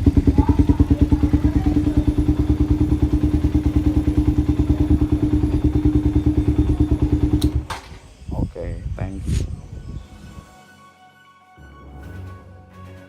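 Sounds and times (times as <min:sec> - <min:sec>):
motorcycle engine idling: 0:00.0 - 0:07.7.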